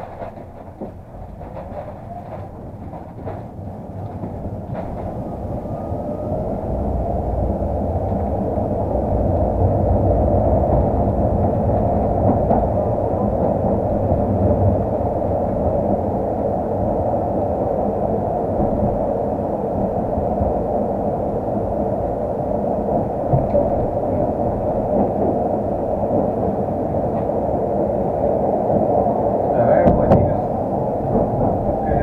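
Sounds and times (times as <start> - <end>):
sharp clicks and knocks: 0.0 - 5.3
tram running on rails: 0.0 - 32.0.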